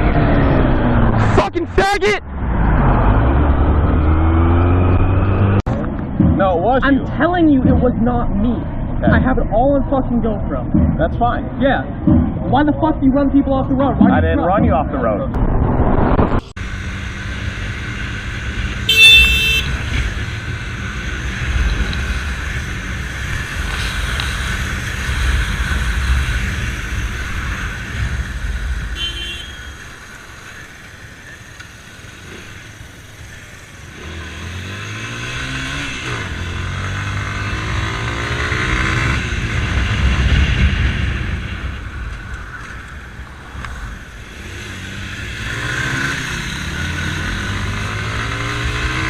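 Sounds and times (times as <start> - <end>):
vehicle running on road: 0.0 - 49.0
engine revving up: 2.4 - 5.7, 44.3 - 49.0
horn honk: 18.8 - 20.0, 28.9 - 30.0.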